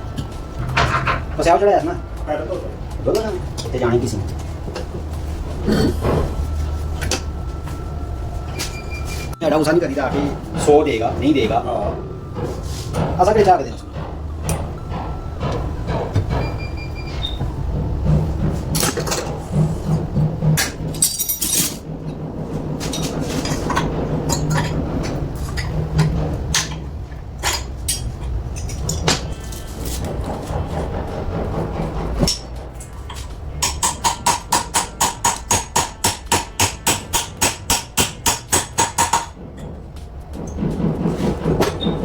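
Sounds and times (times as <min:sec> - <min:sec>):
steady low hum: 0:00.0 - 0:41.6
hard objects clinking and knocking: 0:20.6 - 0:21.8
hammer tapping on metal: 0:33.6 - 0:39.7.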